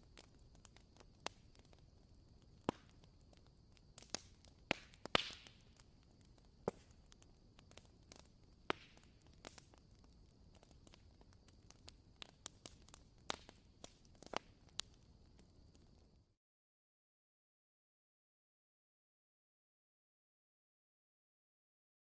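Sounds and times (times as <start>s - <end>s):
candle wick crackling and popping: 0.0s - 15.7s.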